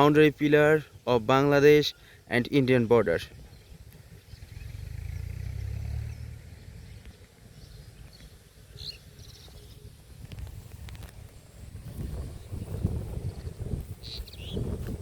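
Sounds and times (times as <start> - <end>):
bird chirp: 0.0 - 15.0
open-air ambience: 0.0 - 15.0
wind buffeting microphone: 3.1 - 15.0.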